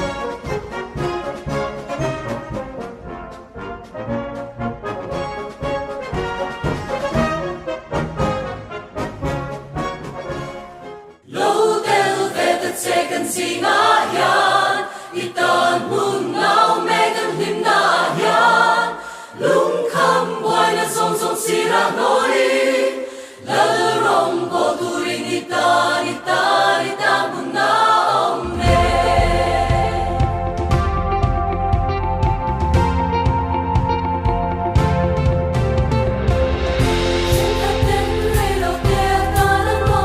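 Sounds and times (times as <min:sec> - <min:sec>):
choir singing: 0:11.2 - 0:30.8, 0:36.8 - 0:40.0
music with strong bass: 0:28.6 - 0:40.0.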